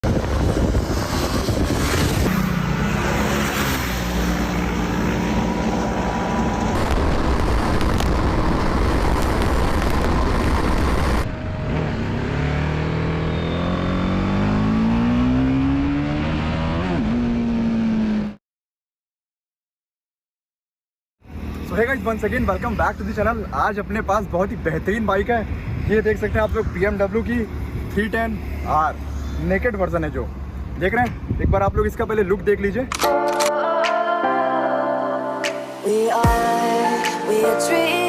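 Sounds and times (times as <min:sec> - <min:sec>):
motorcycle engine revving: 0:00.1 - 0:18.4.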